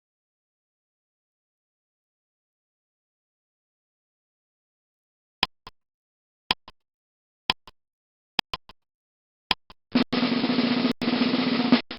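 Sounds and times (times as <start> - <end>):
sharp clicks like ticking timer: 5.4 - 5.8, 6.5 - 6.8, 7.5 - 7.8, 8.4 - 8.8, 9.5 - 10.0
snare drum roll: 10.0 - 11.9.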